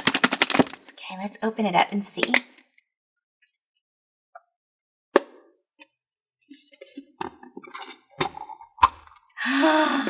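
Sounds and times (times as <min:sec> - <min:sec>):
plastic container snap clicks: 0:00.0 - 0:00.8, 0:02.2 - 0:02.5.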